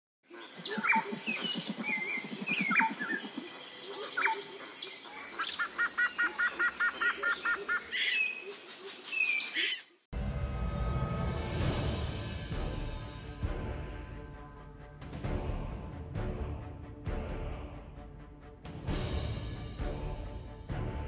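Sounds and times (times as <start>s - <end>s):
birds calling: 0.3s - 10.0s
music: 10.1s - 21.0s.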